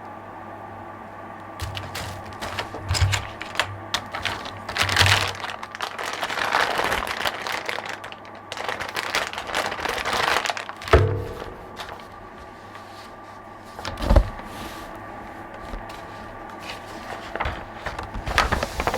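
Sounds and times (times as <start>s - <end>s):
wrap rustling and crinkling: 1.6s - 18.9s.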